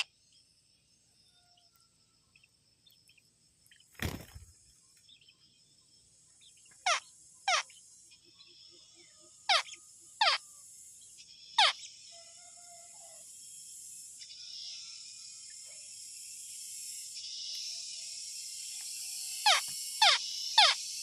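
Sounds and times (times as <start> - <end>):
high-pitched insect buzz: 6.3 - 21.0.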